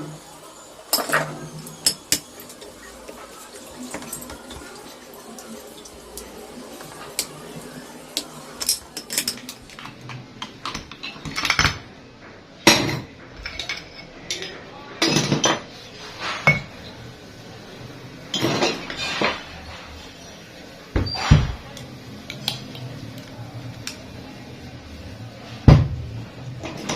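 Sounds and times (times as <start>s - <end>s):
metal tools clinking: 8.6s - 10.0s.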